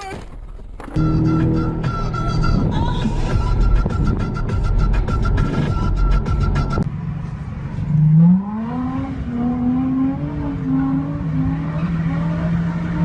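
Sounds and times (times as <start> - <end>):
car engine accelerating: 0.9 - 13.0.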